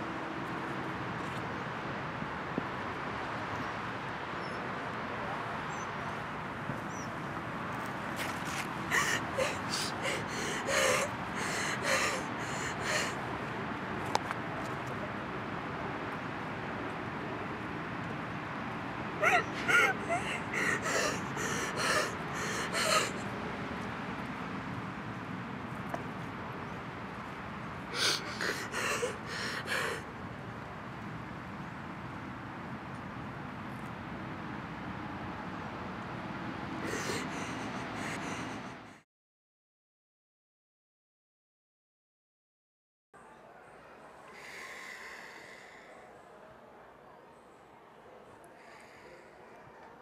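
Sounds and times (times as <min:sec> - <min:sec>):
person gasping: 0:08.9 - 0:13.2, 0:19.2 - 0:23.2, 0:27.9 - 0:30.0, 0:36.8 - 0:39.0.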